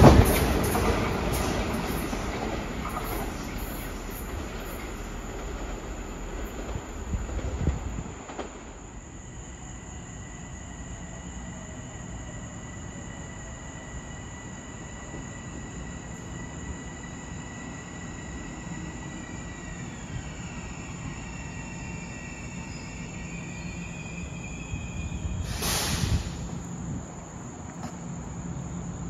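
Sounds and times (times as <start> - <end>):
train low rumble: 0.0 - 29.0
loud burst of noise: 25.4 - 26.5.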